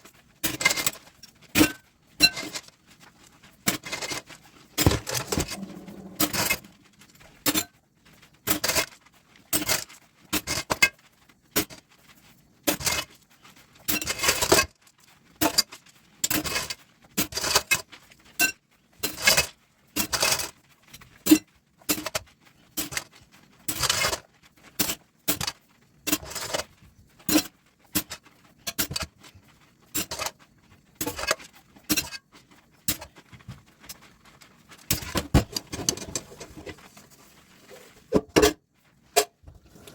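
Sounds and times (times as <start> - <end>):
dishes and utensils clinking: 4.8 - 6.7.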